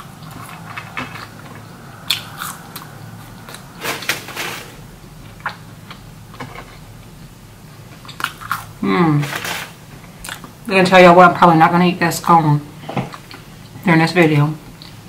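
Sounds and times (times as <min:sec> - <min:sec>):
person chewing food: 0:00.0 - 0:04.2, 0:05.2 - 0:08.8, 0:10.0 - 0:10.6, 0:13.0 - 0:13.8.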